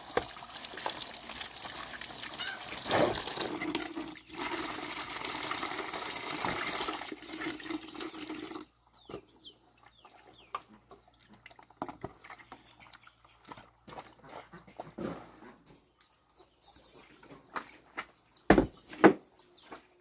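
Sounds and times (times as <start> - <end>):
water pouring: 0.0 - 8.8.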